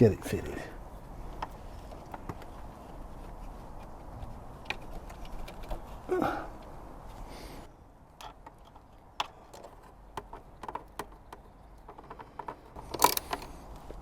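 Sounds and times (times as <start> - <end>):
light clicks and taps on metal linkage: 9.6 - 13.5.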